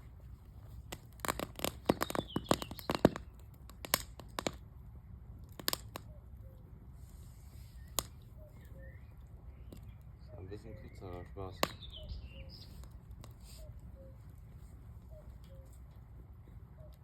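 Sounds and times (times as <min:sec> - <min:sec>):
wood fire crackling and popping: 0:00.0 - 0:04.8, 0:05.4 - 0:06.2, 0:07.8 - 0:08.2, 0:11.5 - 0:13.4.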